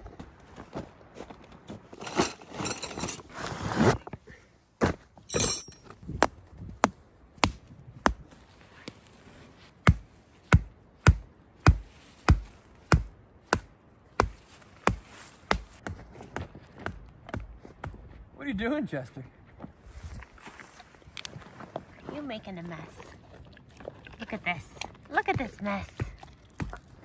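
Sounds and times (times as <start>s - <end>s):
rustling: 0.5s - 4.1s
mallet driving tent stakes: 9.9s - 18.0s.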